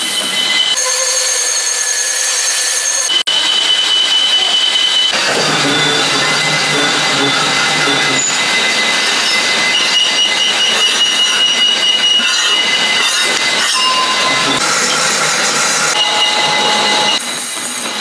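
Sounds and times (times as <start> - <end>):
metallic grinding with squealing: 4.8 - 17.6.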